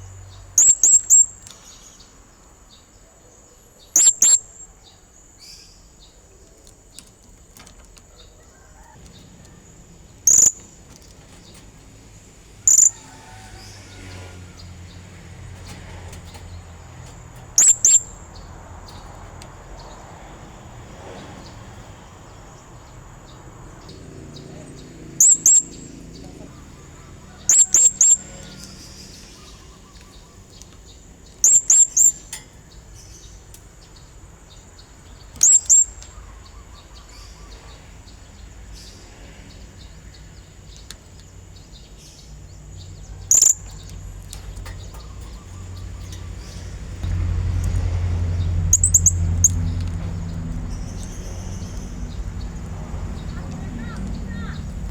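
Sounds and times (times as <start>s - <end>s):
low hum: 44.1s - 54.9s.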